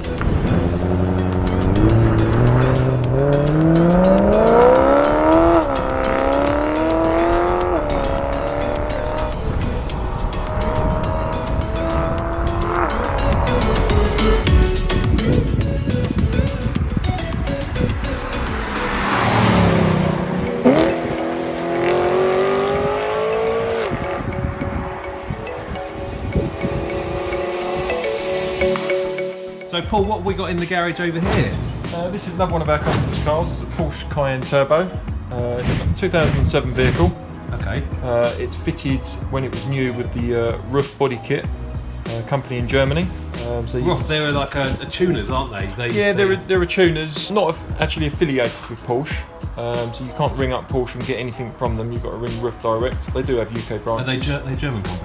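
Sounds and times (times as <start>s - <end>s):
music with steady beat: 0.0s - 19.0s, 20.0s - 33.6s
car engine revving: 0.0s - 29.6s.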